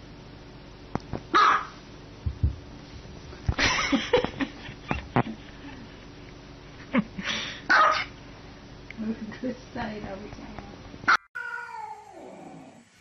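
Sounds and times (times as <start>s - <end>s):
small dog barking: 1.3s - 1.8s, 7.7s - 8.1s.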